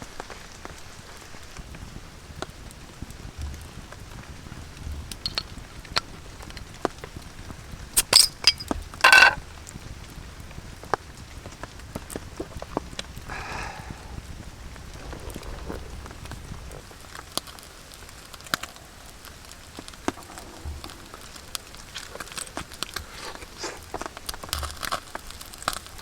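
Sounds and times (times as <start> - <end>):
rain falling: 0.0 - 26.0
short ringing clink: 8.0 - 9.4.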